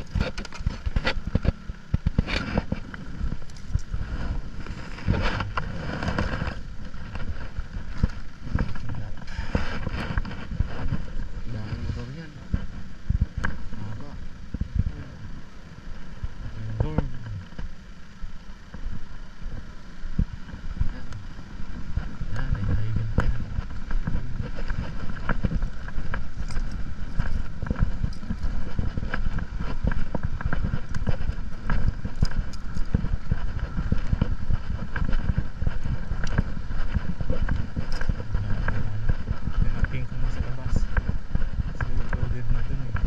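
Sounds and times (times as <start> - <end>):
motorcycle road noise: 0.0 - 43.0
wind buffeting: 0.0 - 43.0.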